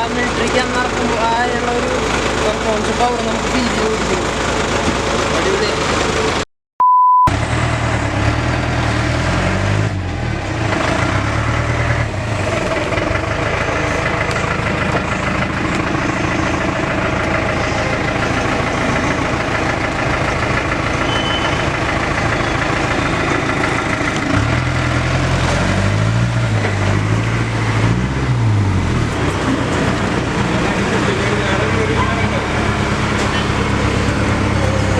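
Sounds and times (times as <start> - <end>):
diesel truck engine running: 0.0 - 6.4, 7.3 - 34.9
short electronic beep: 6.8 - 7.4, 21.0 - 21.7.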